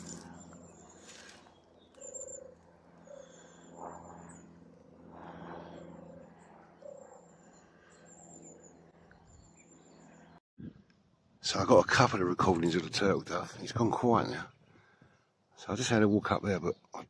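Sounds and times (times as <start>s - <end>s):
dove purring song: 0.0s - 10.3s.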